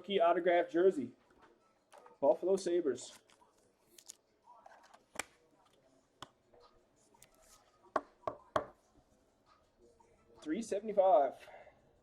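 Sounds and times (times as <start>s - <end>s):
soft rustle of card wrappers: 3.0s - 5.9s.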